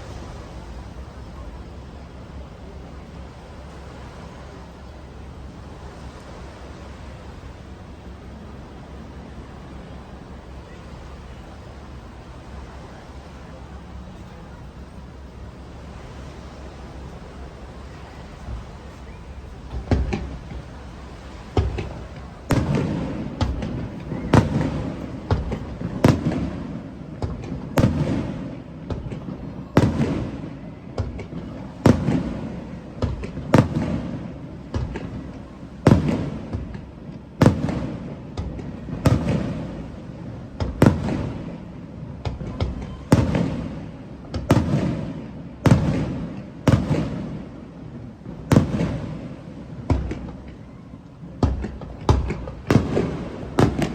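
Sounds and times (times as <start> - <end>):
low rumbling echo: 0.0 - 30.5
fireworks bursting with bangs: 0.0 - 53.9.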